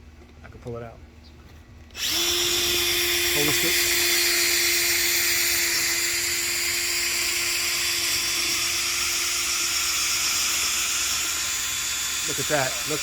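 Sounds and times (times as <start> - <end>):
power drill spinning brush in duct: 2.0 - 13.0.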